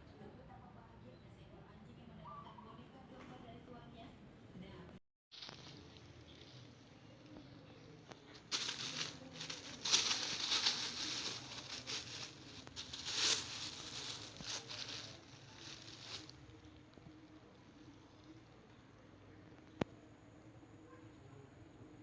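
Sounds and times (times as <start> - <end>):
crinkling and rustling: 5.3 - 18.4.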